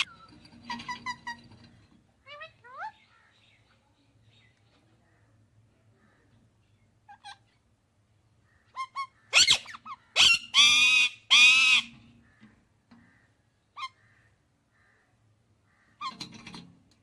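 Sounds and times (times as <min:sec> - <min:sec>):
parrot chirping: 0:00.0 - 0:01.6, 0:08.7 - 0:12.0
parrot screeching and squawking: 0:00.0 - 0:03.0, 0:07.1 - 0:07.6, 0:08.7 - 0:12.1, 0:13.8 - 0:14.0.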